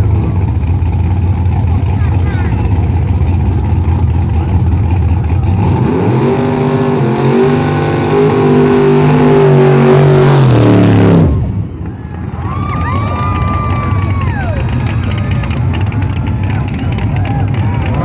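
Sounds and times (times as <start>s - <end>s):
car engine revving hard: 0.0s - 11.7s.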